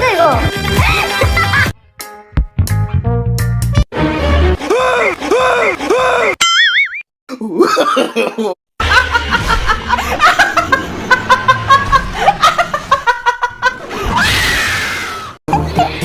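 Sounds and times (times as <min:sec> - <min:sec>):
person laughing: 0:07.3 - 0:14.0, 0:15.5 - 0:16.0.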